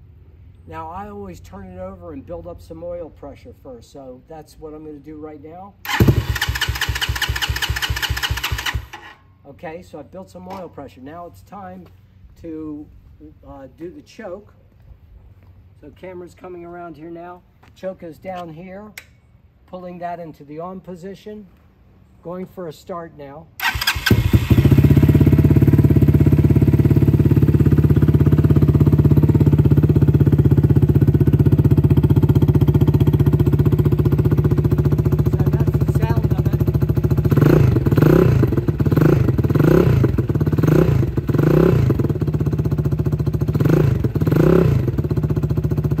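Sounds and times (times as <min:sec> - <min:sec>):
motorcycle engine idling: 0:05.9 - 0:09.0, 0:23.6 - 0:46.0.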